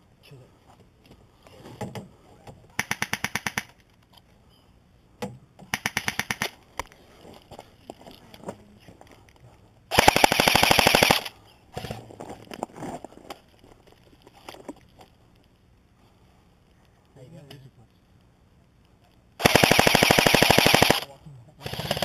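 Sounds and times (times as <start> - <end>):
airsoft rifle automatic bursts: 2.8 - 3.8, 5.7 - 6.6, 9.9 - 11.3, 19.4 - 22.0.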